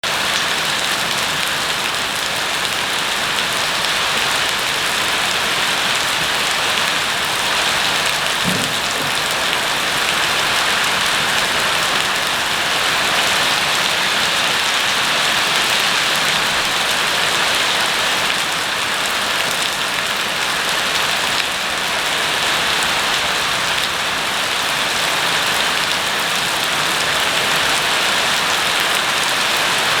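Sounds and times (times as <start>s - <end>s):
rain falling: 0.0s - 30.0s
faint low knock: 8.4s - 9.5s.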